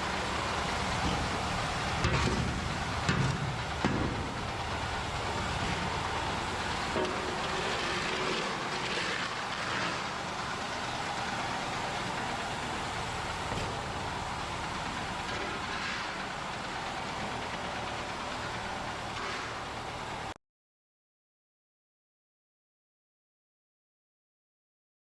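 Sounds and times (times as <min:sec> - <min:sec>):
vehicle engine running: 0:00.0 - 0:20.4.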